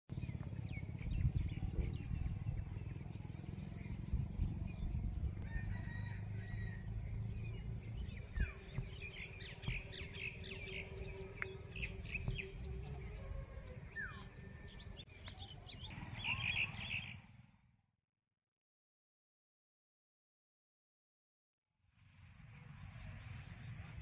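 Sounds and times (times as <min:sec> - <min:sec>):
small birds chirping: 0:00.1 - 0:17.2
steady low rumble: 0:00.2 - 0:15.1.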